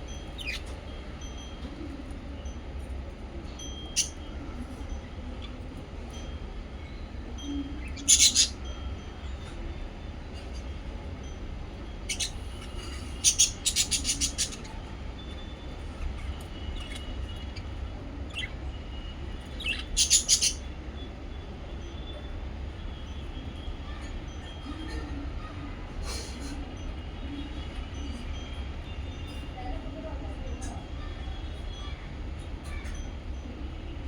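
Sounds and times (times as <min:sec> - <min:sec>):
birds chirping: 0:00.0 - 0:24.7.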